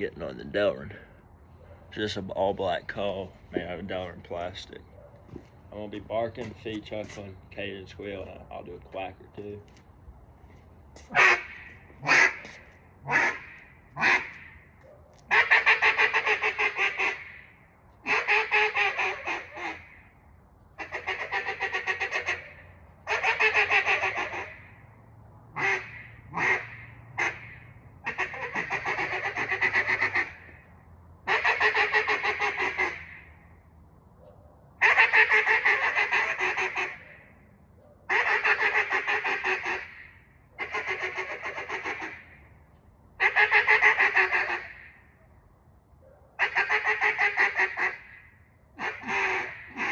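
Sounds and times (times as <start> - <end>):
duck call choppy notes: 11.1 - 14.6, 15.3 - 17.4, 18.1 - 19.9, 20.8 - 22.4, 23.1 - 24.6, 25.6 - 30.5, 31.3 - 33.2, 34.8 - 37.0, 38.1 - 42.3, 43.2 - 44.9, 46.4 - 48.2, 48.8 - 49.9.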